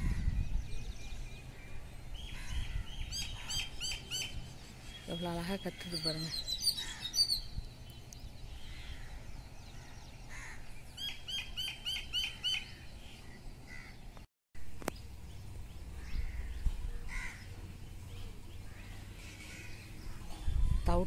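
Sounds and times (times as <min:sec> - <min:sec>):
songbird ringing calls: 0:02.2 - 0:09.5, 0:10.2 - 0:14.0.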